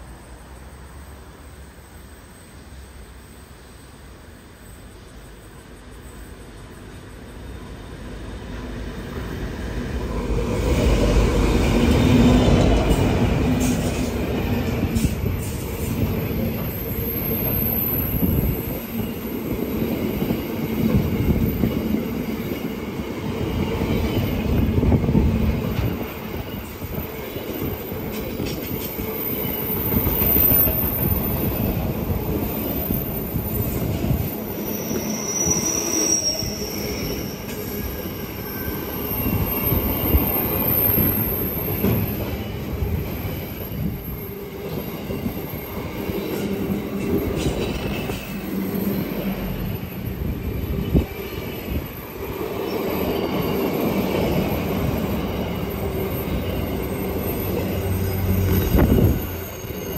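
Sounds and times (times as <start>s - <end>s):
diesel locomotive passing: 0.0s - 59.9s
high wheel squeal: 23.6s - 59.9s.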